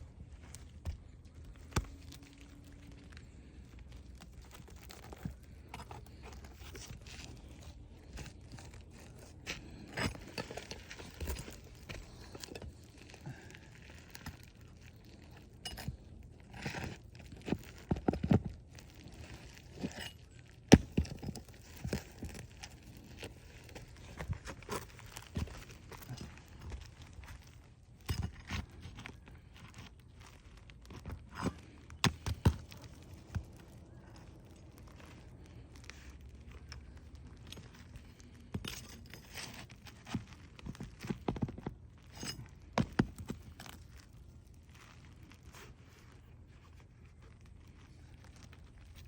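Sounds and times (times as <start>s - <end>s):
roof shingle scraping and crackling: 0.5s - 49.0s.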